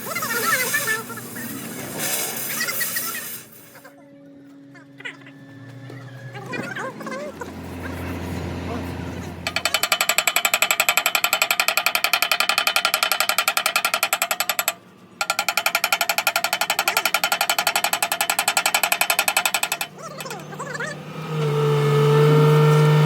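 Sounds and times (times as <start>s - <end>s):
rapid mechanical hammering: 9.4s - 21.6s.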